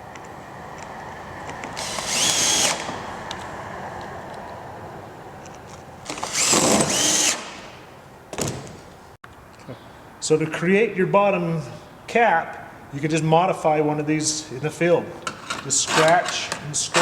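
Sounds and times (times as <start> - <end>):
power drill whining: 1.8 - 3.0, 6.1 - 7.7.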